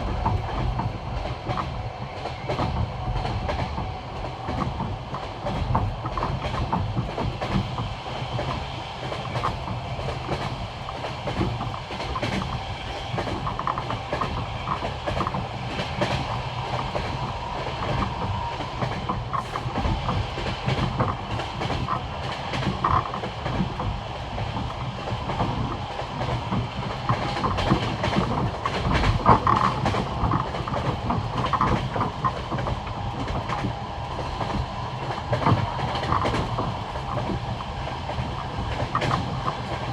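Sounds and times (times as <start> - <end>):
train rolling rumble: 0.0 - 39.9
train wheels clicking over rail joints: 0.0 - 39.9.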